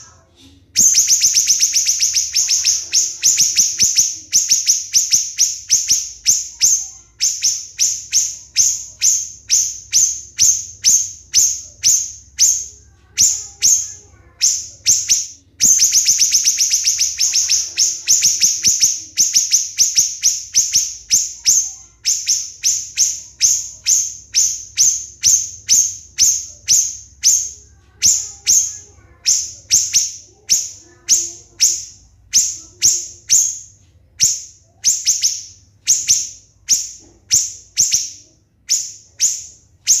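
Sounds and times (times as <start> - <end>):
bird calling with shrill notes: 0.8 - 40.0.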